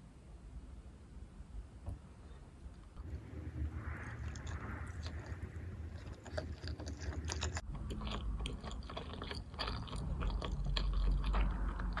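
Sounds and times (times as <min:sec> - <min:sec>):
wet chewing clicks and smacks: 0:03.9 - 0:12.0.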